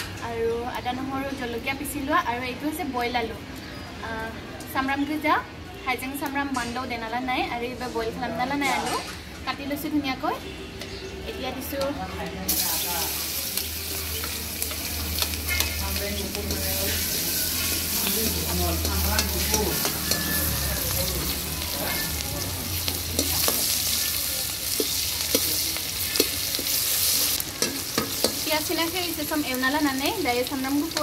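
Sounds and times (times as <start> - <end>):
onions sizzling in hot oil: 12.5 - 31.0.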